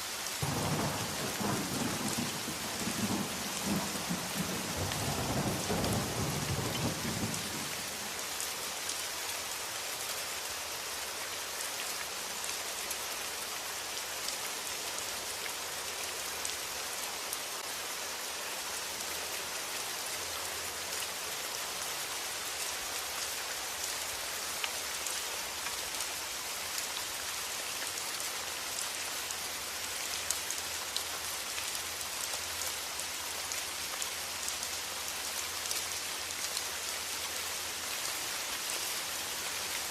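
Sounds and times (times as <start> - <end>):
steady rain: 0.0 - 39.9
low rumble of thunder: 0.4 - 8.1.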